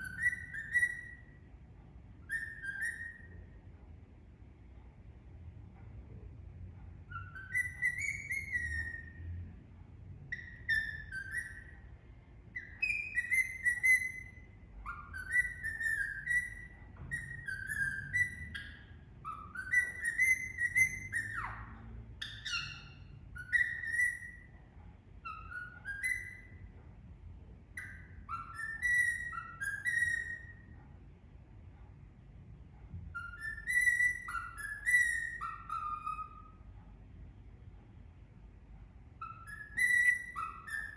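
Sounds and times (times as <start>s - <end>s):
parakeet whistling a tune: 0.0s - 1.4s, 2.2s - 3.6s, 7.0s - 9.2s, 10.3s - 11.9s, 12.5s - 24.6s, 25.2s - 26.7s, 27.7s - 30.8s, 33.1s - 36.7s, 39.2s - 40.9s.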